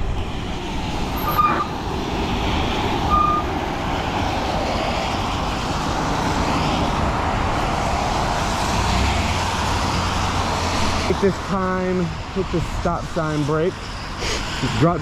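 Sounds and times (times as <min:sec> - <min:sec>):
wet road noise: 0:00.0 - 0:15.0
short high-pitched squeak: 0:01.2 - 0:01.7.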